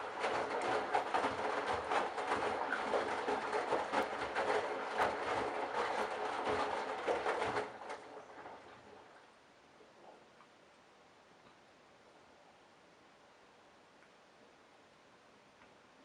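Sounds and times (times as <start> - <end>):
washing machine drum tumbling: 0.0 - 8.8
water sloshing and clattering: 0.0 - 9.3.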